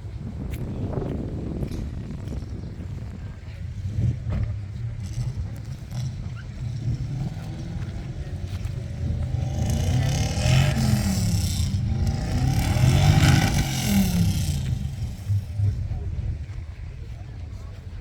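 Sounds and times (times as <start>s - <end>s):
car engine running: 3.7s - 17.0s.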